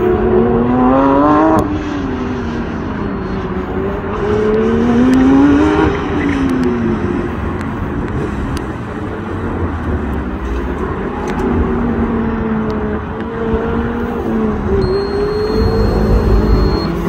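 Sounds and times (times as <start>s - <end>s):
car engine revving: 9.3s - 17.0s.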